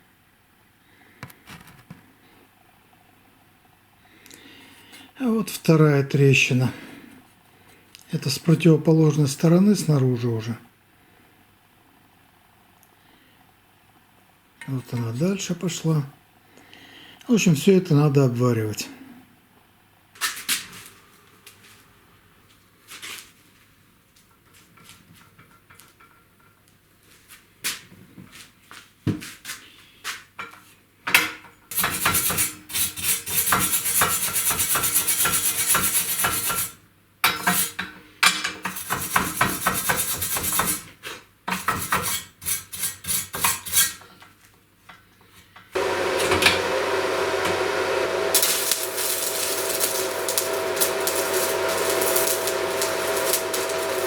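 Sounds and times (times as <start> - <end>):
arc welding crackling: 45.8 - 54.0
faint whine: 45.8 - 54.0
arc striking clicks: 48.4 - 54.0.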